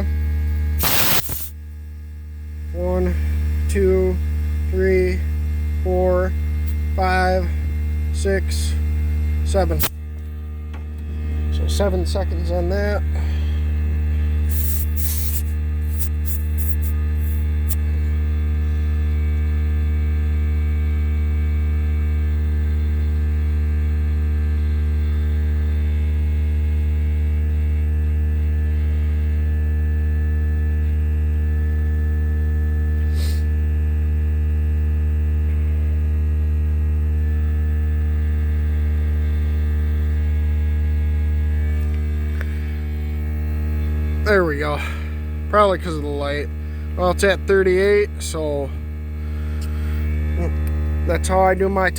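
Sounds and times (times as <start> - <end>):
electric motor hum: 0.0 - 51.9
short hisses or clicks: 0.8 - 1.5, 14.5 - 16.9.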